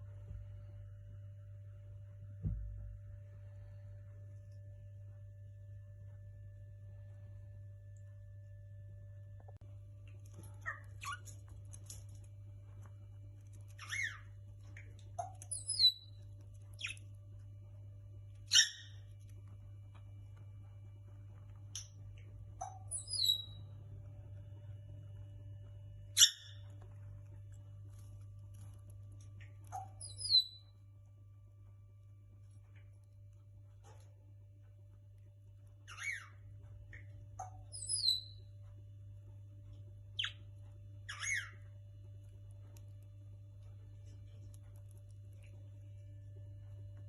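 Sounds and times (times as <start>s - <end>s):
low hum: 0.0s - 47.0s
parrots chirping and squawking: 10.3s - 12.1s, 13.5s - 17.0s, 18.4s - 19.1s, 22.6s - 23.6s, 26.2s - 26.7s, 29.4s - 30.6s, 35.8s - 38.3s, 41.1s - 41.6s.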